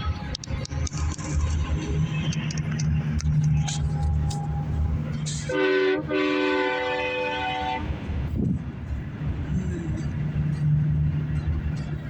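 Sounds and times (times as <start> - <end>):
low road rumble: 0.0 - 12.0
truck air horn chord: 5.3 - 7.9.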